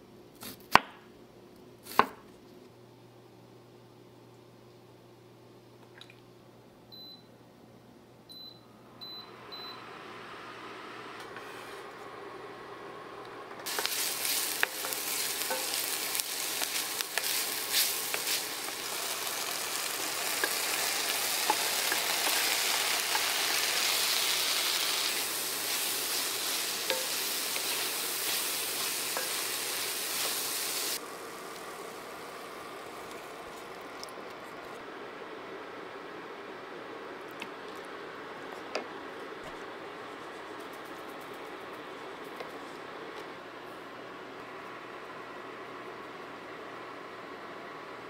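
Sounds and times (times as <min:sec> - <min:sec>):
food sizzling in hot oil: 0:13.7 - 0:32.1.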